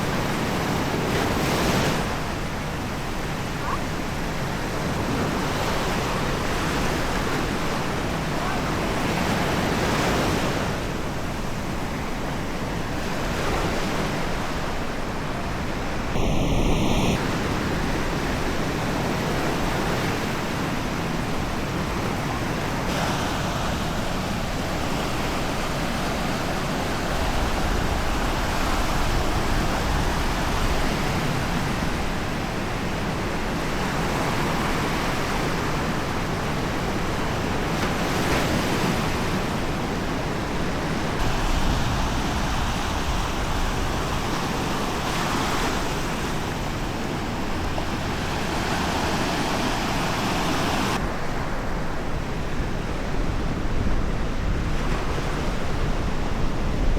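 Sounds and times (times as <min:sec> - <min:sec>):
sea waves washing onto beach: 0:00.0 - 0:56.9
wind: 0:00.0 - 0:56.9
brief high tone: 0:16.1 - 0:17.2.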